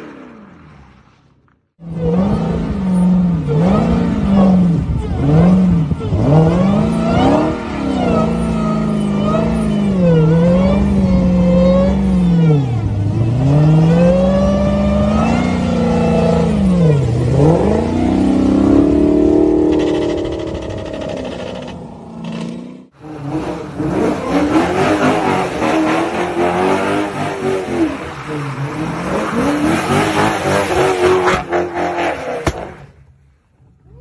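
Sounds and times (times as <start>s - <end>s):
car engine revving hard: 3.5s - 20.4s, 23.0s - 28.1s.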